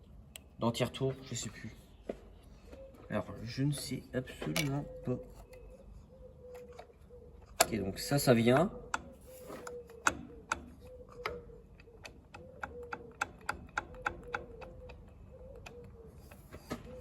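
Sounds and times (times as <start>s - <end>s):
metallic clicks and taps: 6.5s - 7.8s, 8.5s - 15.9s.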